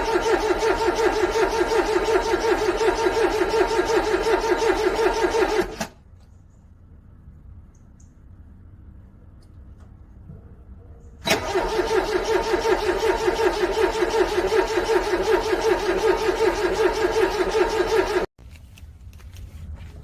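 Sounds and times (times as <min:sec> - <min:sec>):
car engine cranking: 0:00.0 - 0:05.9, 0:11.2 - 0:18.3.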